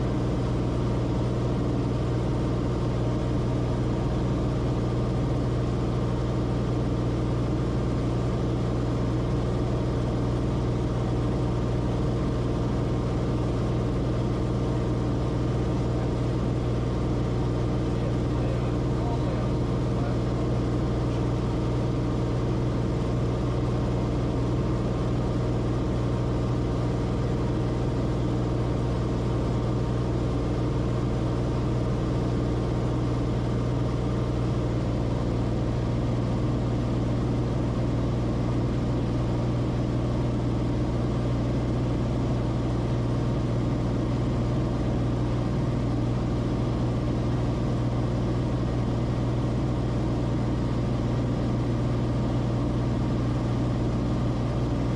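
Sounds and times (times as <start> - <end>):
propeller plane engine droning: 0.0 - 54.9.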